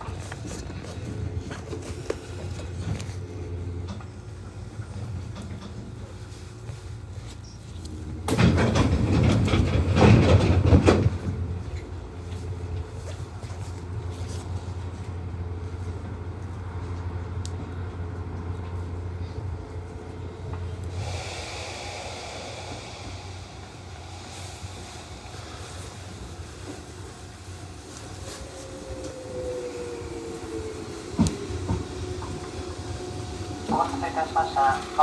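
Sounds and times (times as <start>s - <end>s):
train low hum: 0.0s - 35.0s
train rattling clatter: 0.0s - 35.0s
hiss: 20.8s - 35.0s.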